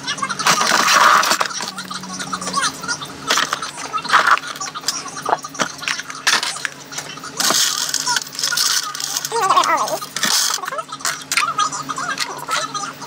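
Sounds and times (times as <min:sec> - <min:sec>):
rustling of small items: 0:05.6 - 0:11.5.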